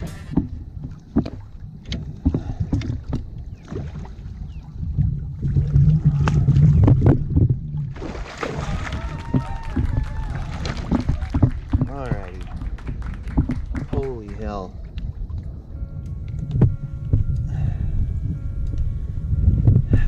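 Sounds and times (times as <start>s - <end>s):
choppy water: 0.0s - 20.0s
wind rumbling on microphone: 0.0s - 20.0s
knocks against a kayak: 10.6s - 12.4s, 13.3s - 14.0s.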